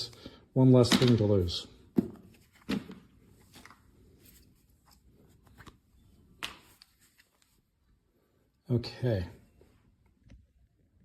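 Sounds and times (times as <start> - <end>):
rustling of handling: 1.9 - 8.2.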